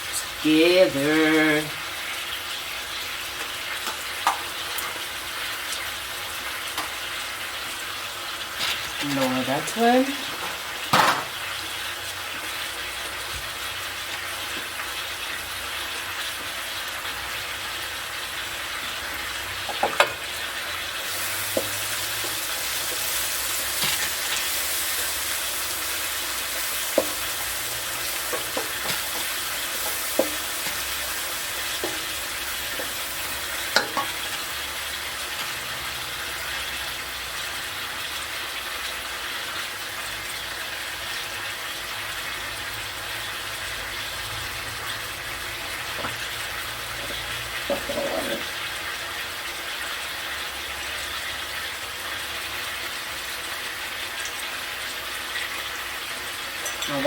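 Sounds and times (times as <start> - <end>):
seafood sizzling in a frying pan: 0.0 - 57.0
utensil knocking against pan: 10.4 - 11.4.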